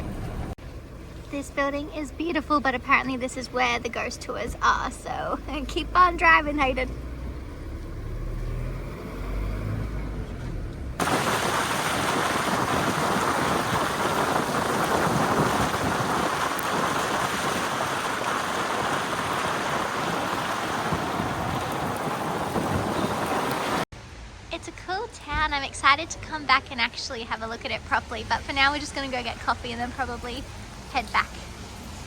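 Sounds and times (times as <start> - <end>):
car rumbling on road: 0.0 - 23.9
heavy rain: 11.0 - 23.9.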